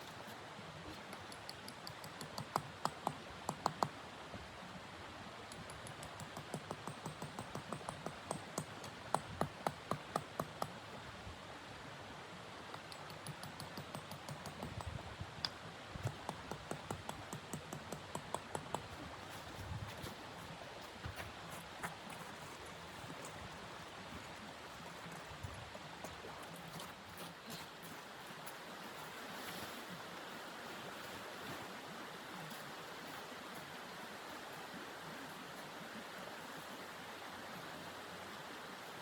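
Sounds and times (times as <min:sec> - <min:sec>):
footsteps crunching in snow: 0:26.3 - 0:29.8.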